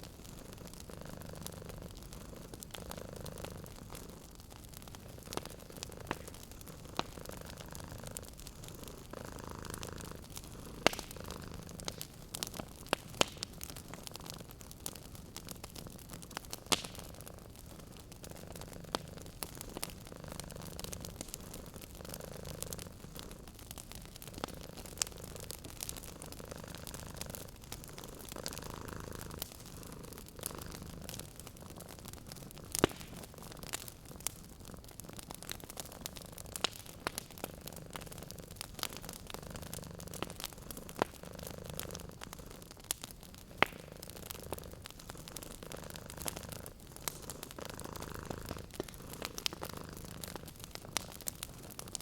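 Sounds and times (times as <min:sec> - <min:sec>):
cat purring: 0:00.0 - 0:52.0
wood fire crackling: 0:00.0 - 0:52.0.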